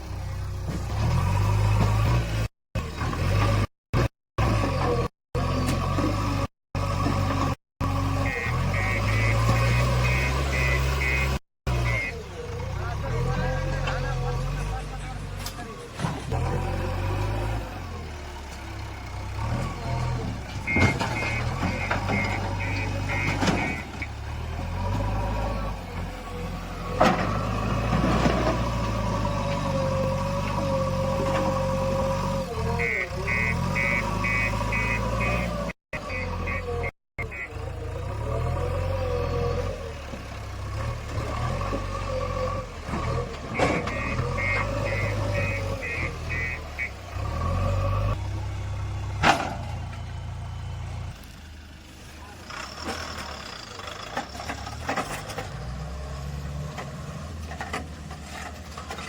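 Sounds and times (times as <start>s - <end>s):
heavy diesel engine running: 4.4s - 56.5s
reverse alarm beeping: 8.3s - 12.2s, 20.7s - 23.8s, 32.8s - 37.5s, 43.8s - 47.0s.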